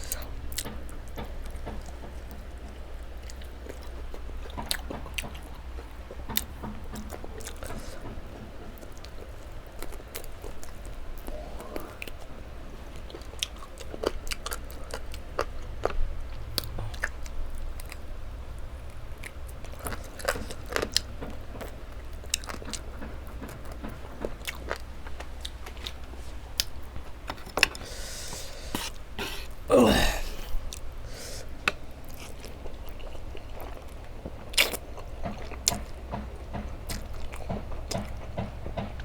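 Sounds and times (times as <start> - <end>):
person chewing food: 0.0 - 8.1, 13.0 - 17.2, 19.2 - 22.8, 24.2 - 35.9.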